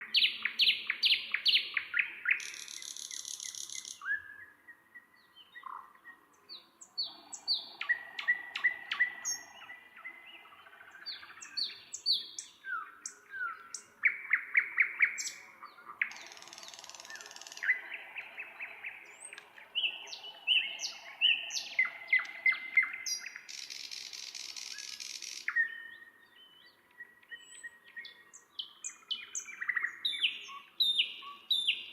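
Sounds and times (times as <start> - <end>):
nightingale singing: 0.0 - 31.9.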